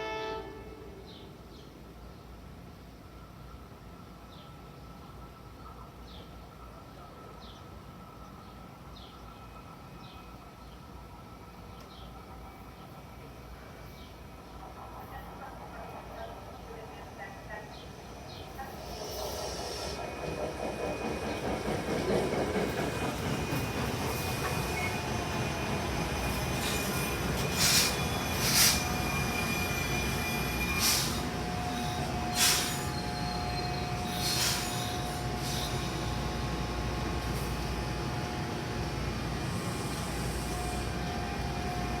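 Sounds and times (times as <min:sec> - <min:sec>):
train rumble: 0:00.9 - 0:42.0
sharp high hisses: 0:18.3 - 0:20.1, 0:26.2 - 0:36.4, 0:39.4 - 0:41.3.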